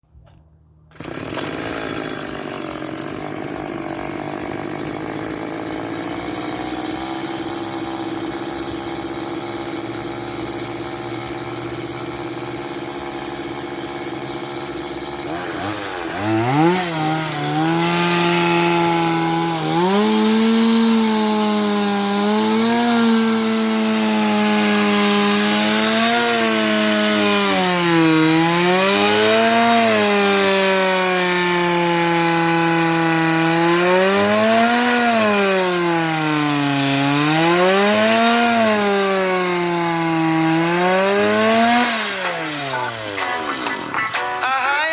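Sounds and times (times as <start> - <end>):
chainsaw engine revving: 0.9 - 44.9
drill attachment boring: 0.9 - 44.9.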